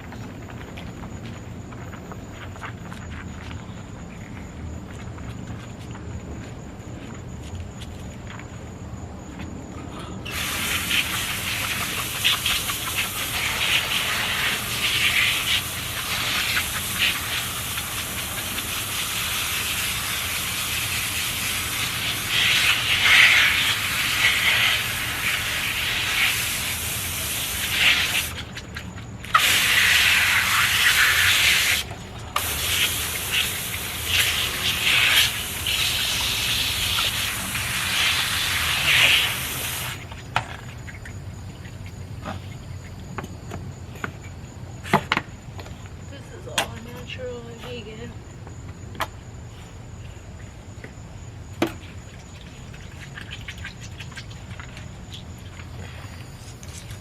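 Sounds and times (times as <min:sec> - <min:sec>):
water running and spraying: 0:10.2 - 0:40.2.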